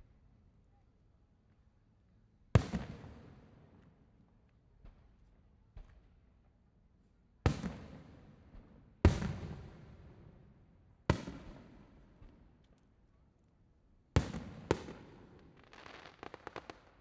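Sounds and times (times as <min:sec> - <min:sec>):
faint fireworks pops: 0:04.8 - 0:06.2, 0:14.2 - 0:17.0.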